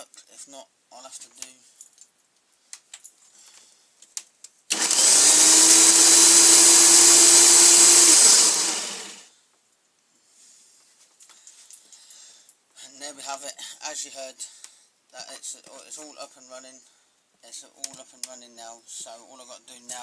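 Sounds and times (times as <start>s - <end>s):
electric lawnmower motor running: 4.7s - 9.2s.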